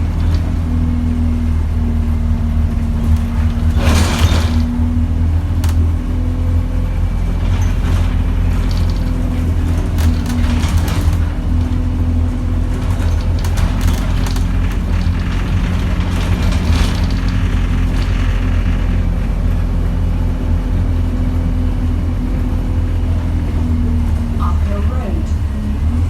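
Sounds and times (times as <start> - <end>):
body and fittings rattling: 0.0 - 19.8
bus engine droning: 0.0 - 26.0.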